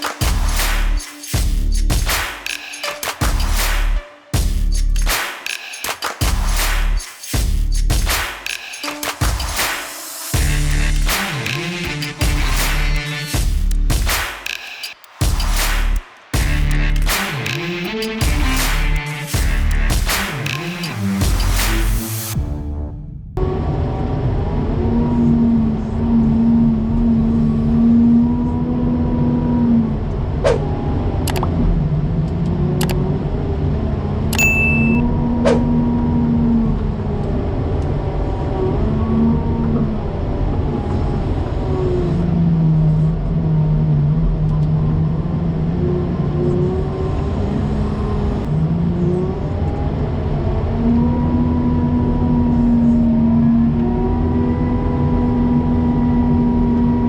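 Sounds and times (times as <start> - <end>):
heavy engine revving: 10.4 - 13.9
brief high beep: 34.4 - 35.1.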